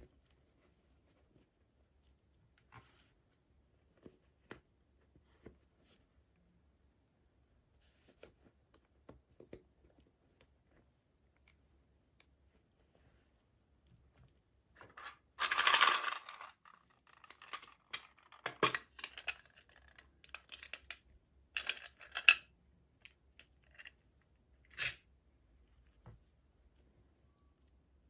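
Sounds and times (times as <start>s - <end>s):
small plastic pieces clicking: 15.0s - 21.0s.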